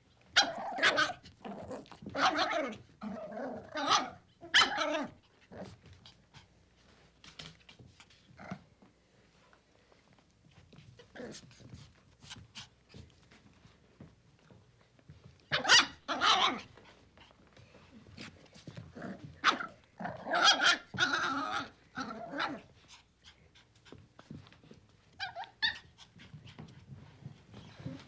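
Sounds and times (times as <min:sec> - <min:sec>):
puppy barking and growling: 0:00.3 - 0:05.8, 0:15.5 - 0:16.8, 0:18.9 - 0:22.7.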